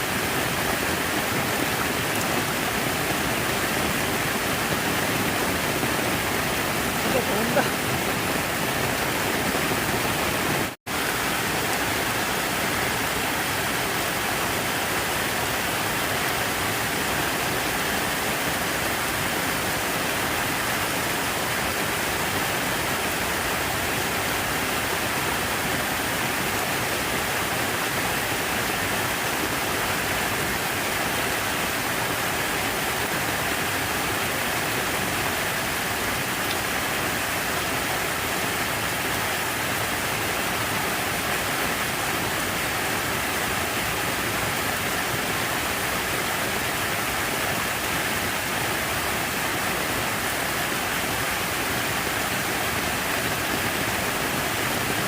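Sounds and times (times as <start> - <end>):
falling water rushing: 0.0 - 55.0.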